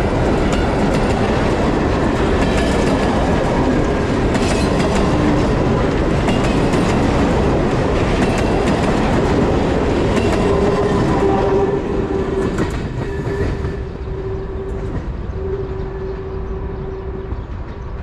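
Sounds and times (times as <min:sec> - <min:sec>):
steady tone from train: 0:10.1 - 0:18.0.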